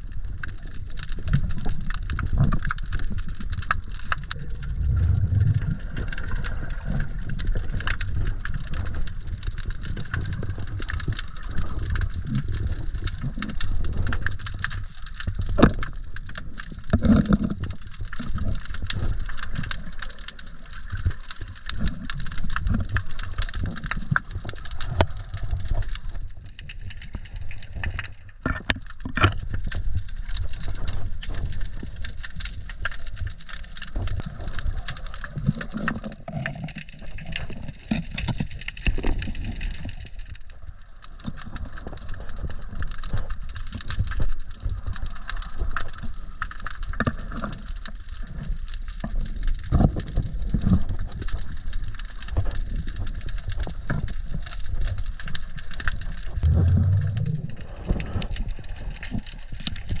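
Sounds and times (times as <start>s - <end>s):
low rumble: 4.2s - 8.5s, 56.4s - 59.2s
seawater sloshing and gurgling: 56.3s - 60.0s.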